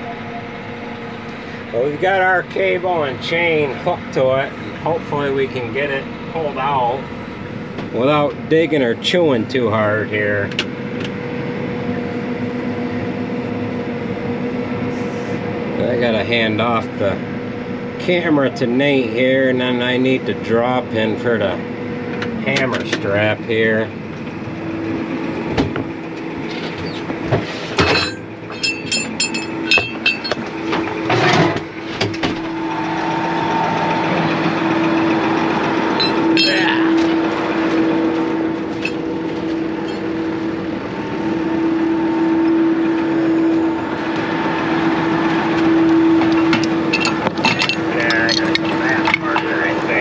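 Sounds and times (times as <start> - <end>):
heavy diesel engine whining: 0.0 - 50.0
sharp knocks and rattles: 26.5 - 32.6.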